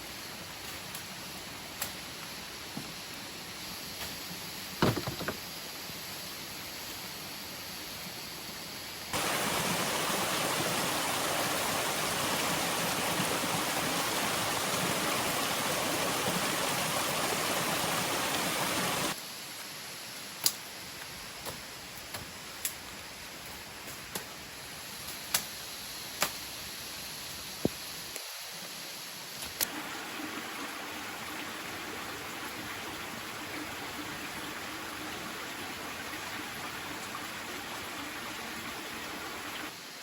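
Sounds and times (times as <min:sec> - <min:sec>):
background water noise: 0:00.0 - 0:40.0
loud rush of water: 0:09.1 - 0:19.2, 0:29.6 - 0:39.8.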